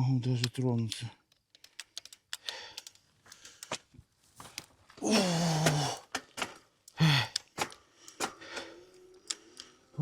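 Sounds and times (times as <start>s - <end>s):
sharp clicks: 0.4s - 3.8s
person breathing heavily: 2.4s - 3.8s, 5.0s - 6.1s, 6.9s - 9.9s
person groaning oh: 5.0s - 6.1s.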